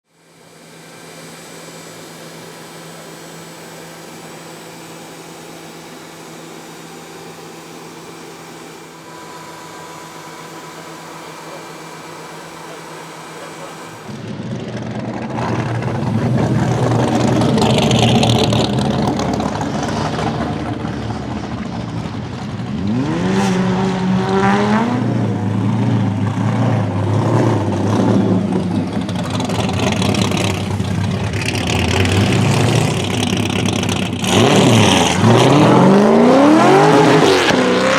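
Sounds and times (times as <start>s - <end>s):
steady hum: 0.1s - 22.6s
car engine revving hard: 0.4s - 37.9s.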